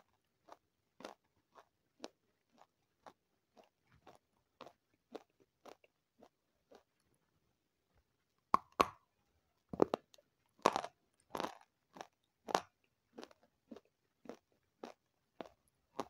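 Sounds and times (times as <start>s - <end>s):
crisp crunching chews: 0.0s - 7.4s, 9.8s - 16.0s
sharp bites of crunchy snack: 10.6s - 16.0s.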